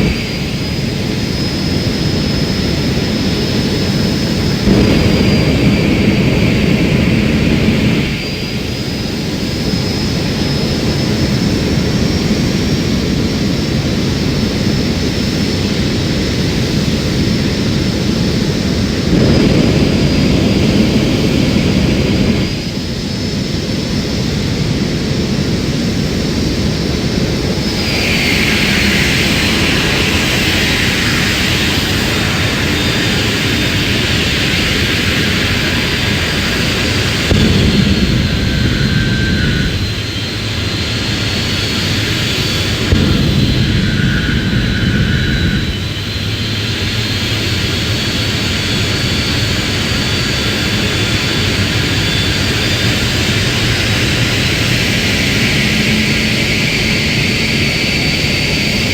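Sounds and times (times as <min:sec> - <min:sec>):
high turbine whine: 0:00.0 - 0:58.9
jet engine rushing noise: 0:00.0 - 0:58.9
bright hiss: 0:27.7 - 0:45.9.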